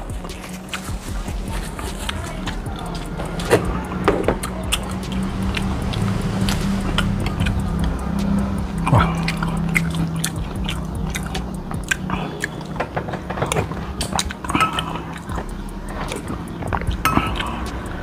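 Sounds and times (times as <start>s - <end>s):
person chewing wetly: 0.2s - 8.0s, 8.6s - 12.8s, 13.4s - 17.9s.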